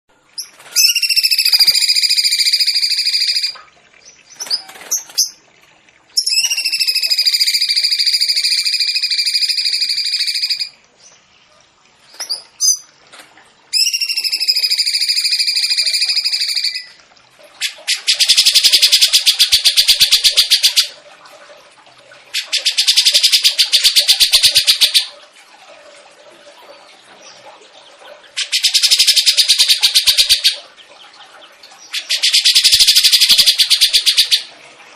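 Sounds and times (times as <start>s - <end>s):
fast rattling bird trill: 0.4s - 3.6s, 6.2s - 10.7s, 13.8s - 16.9s, 17.9s - 20.9s, 28.4s - 30.6s, 31.9s - 34.5s.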